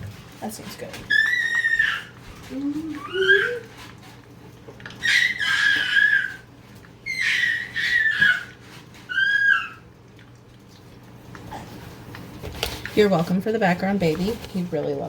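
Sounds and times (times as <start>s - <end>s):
baby squealing: 1.1s - 2.2s, 2.9s - 3.6s, 5.0s - 9.8s.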